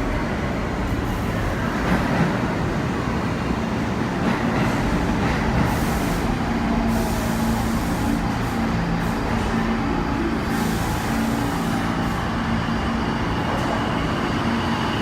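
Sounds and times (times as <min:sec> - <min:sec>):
subway train rumbling on rails: 0:00.0 - 0:15.0.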